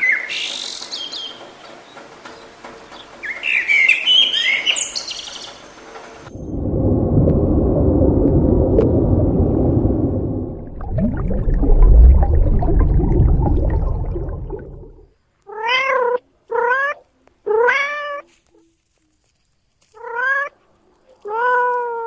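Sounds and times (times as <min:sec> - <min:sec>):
loud rough rumbling: 0:06.5 - 0:15.1.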